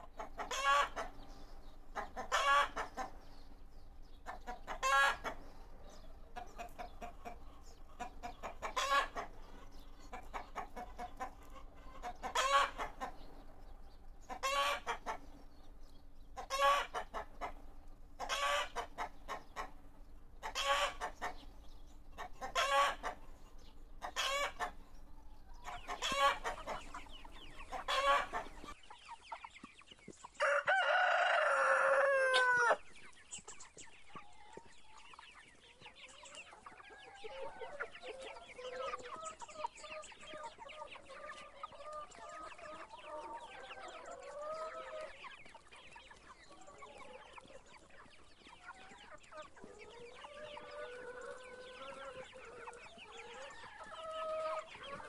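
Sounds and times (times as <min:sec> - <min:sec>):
chicken calls: 0:00.0 - 0:55.0
long falling chicken call: 0:30.4 - 0:32.8.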